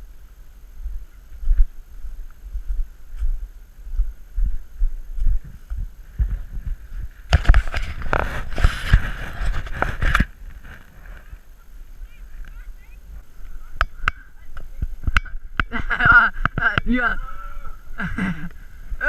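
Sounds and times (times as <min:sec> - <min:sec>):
wind on microphone: 0:00.0 - 0:19.0
bicycle bumping over rough ground: 0:05.2 - 0:18.6.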